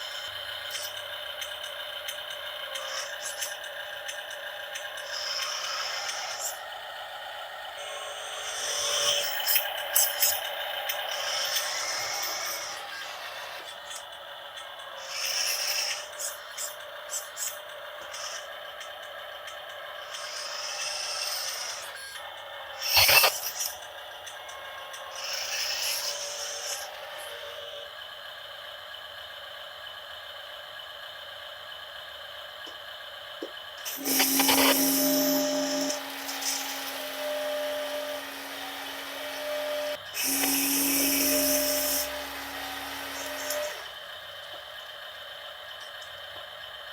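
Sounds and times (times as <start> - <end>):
toy truck motor whirring: 0.0 - 46.9
loud scraping burst: 33.9 - 43.9.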